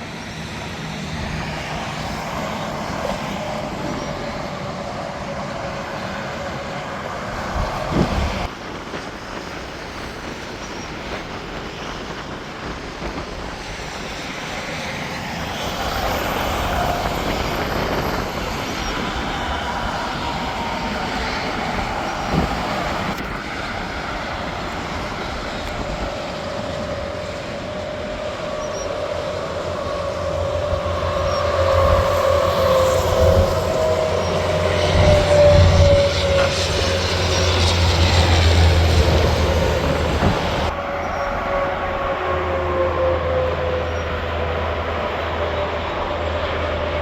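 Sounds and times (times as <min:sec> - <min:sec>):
highway traffic rushing: 0:00.0 - 0:10.5, 0:11.4 - 0:47.0
heavy truck drone: 0:14.7 - 0:47.0.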